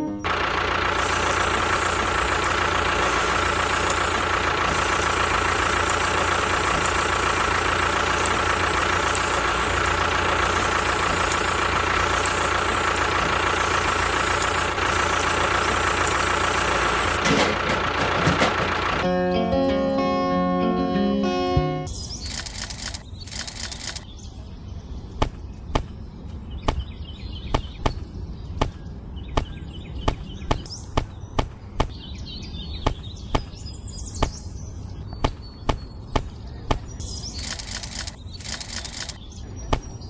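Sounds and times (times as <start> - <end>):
small motor whining: 0.3 - 19.0, 22.2 - 24.0, 37.4 - 39.2
clicks and knocks: 17.2 - 19.0.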